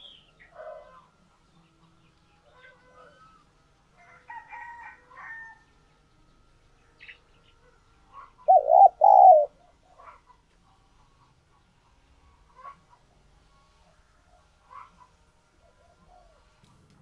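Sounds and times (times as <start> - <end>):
dove cooing: 0.0 - 1.0, 8.4 - 10.2
faint bird notes: 8.5 - 9.5.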